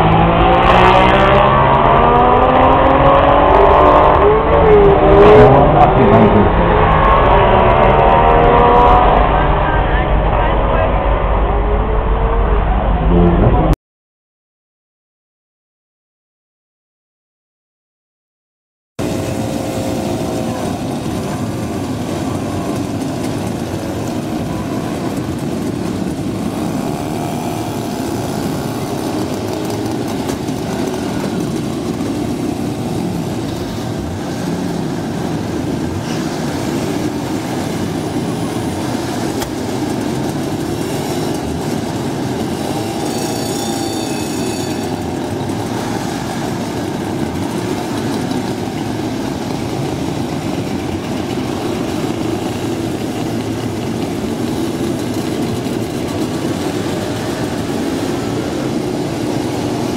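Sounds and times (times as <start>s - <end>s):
small car engines passing: 0.0s - 13.6s, 19.0s - 49.3s.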